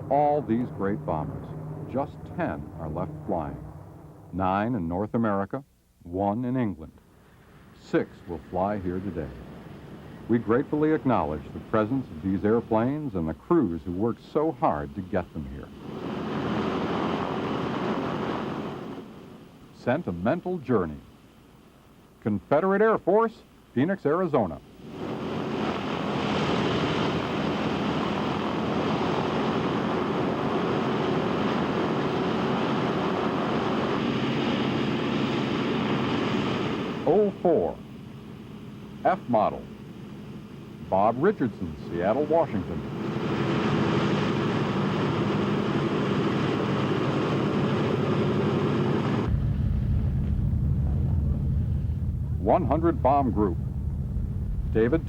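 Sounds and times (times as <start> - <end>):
low dull rumble: 0.0 - 4.7, 42.7 - 55.0
radial aircraft engines droning: 0.0 - 22.2, 22.8 - 55.0.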